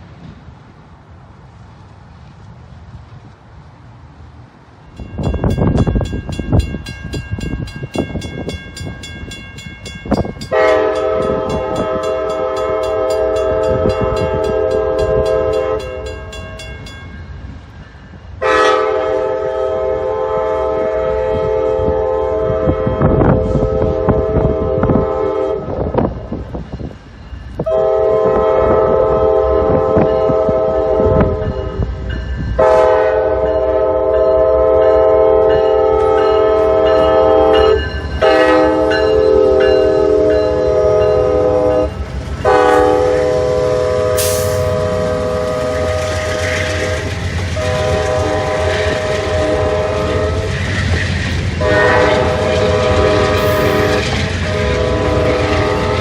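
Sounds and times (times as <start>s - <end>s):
train rumbling: 0.0s - 56.0s
locomotive air horn blasts: 10.5s - 16.3s, 18.4s - 25.9s, 27.6s - 31.6s, 32.6s - 50.6s, 51.6s - 56.0s.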